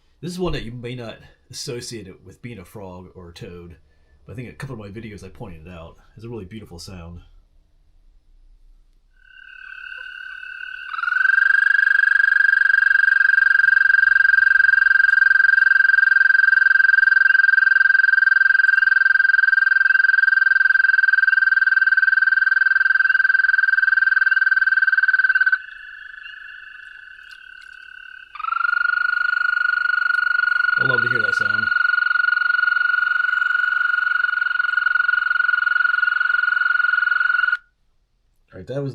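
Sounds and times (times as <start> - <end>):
toad trilling through a speaker: 9.2 - 37.7.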